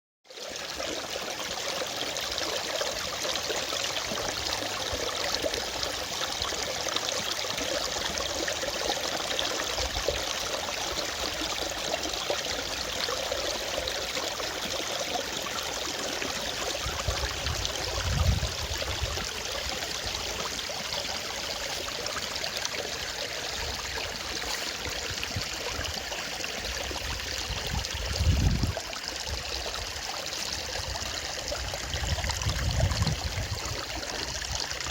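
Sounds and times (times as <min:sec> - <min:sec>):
stream flowing over rocks: 0:00.3 - 0:34.9.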